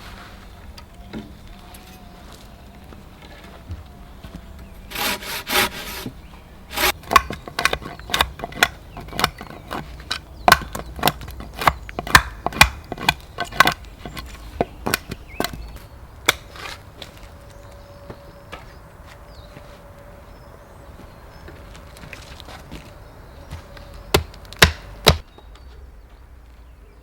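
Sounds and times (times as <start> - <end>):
saw rasping on wood: 4.8 - 15.1
sharp wooden knocks: 4.9 - 16.6, 24.1 - 25.3.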